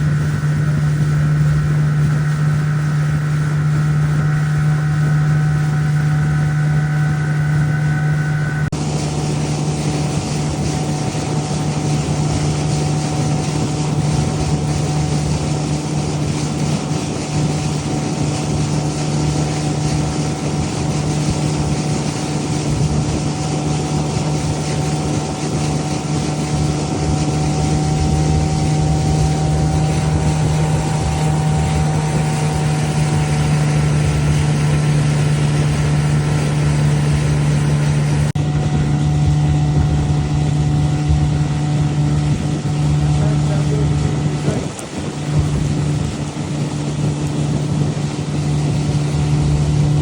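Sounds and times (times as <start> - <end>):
boat engine humming: 0.0 - 50.0
water splashing: 0.0 - 50.0
wind noise on microphone: 0.0 - 50.0.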